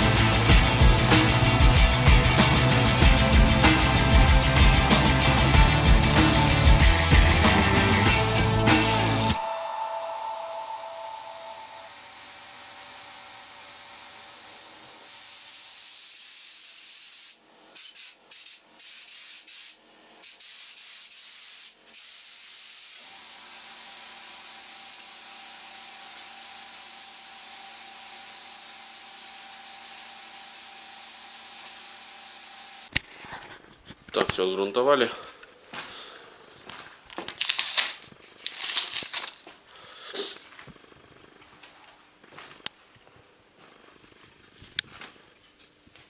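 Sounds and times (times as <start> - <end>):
paint spray gun hissing: 11.4 - 23.4.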